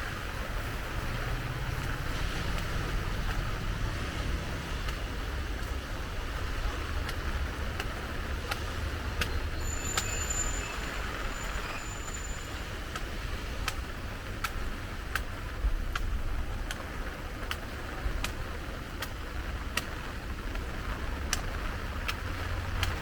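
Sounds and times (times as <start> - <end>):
rain hiss: 0.0 - 23.0
traffic on wet streets: 0.0 - 23.0
thin high squeal: 9.6 - 12.6.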